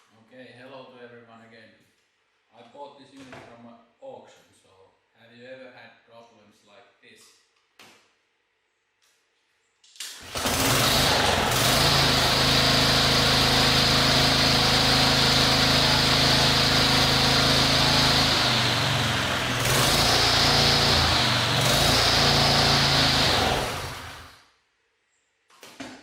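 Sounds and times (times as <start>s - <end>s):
lawnmower engine running: 10.2s - 24.4s.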